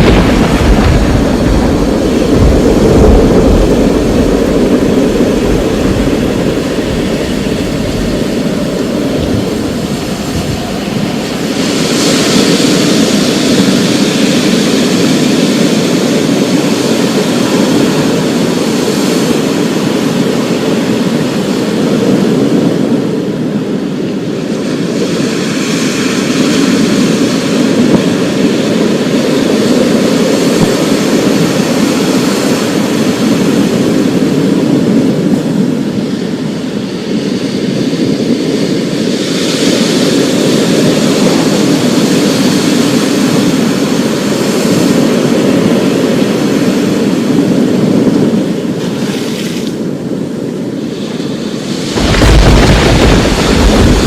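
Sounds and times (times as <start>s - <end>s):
thunder rumbling: 0.0s - 18.3s, 51.8s - 54.0s
steady storm hiss: 0.0s - 21.8s, 25.9s - 54.0s.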